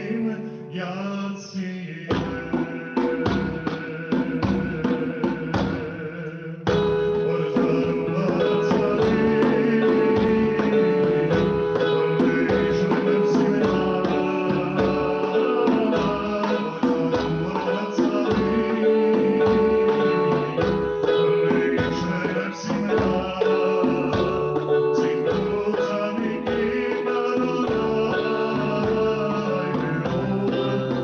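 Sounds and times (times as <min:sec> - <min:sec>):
hand drum strokes: 0:02.1 - 0:31.0
keyboard sustained chords: 0:06.2 - 0:31.0.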